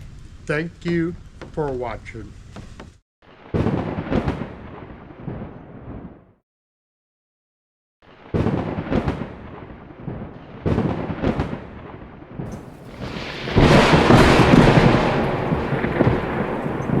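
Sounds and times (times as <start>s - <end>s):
sharp thunder cracks: 3.5s - 6.3s, 8.2s - 17.0s
loud thunder rumble: 8.3s - 17.0s.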